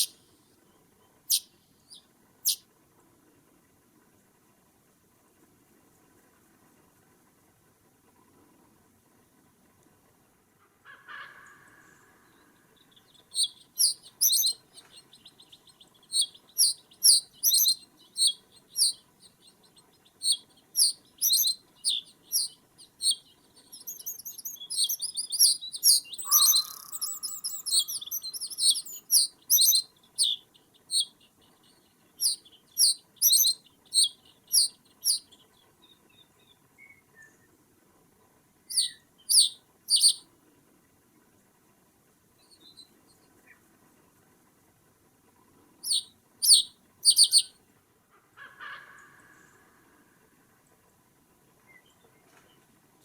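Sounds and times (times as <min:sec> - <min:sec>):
birds twittering: 0:00.0 - 0:02.6, 0:11.4 - 0:37.4, 0:38.7 - 0:40.2, 0:45.8 - 0:47.5
songbirds chirping: 0:00.0 - 0:07.0, 0:11.3 - 0:44.2, 0:45.1 - 0:47.6, 0:48.8 - 0:53.0
low bird call: 0:10.8 - 0:35.3, 0:45.8 - 0:47.5.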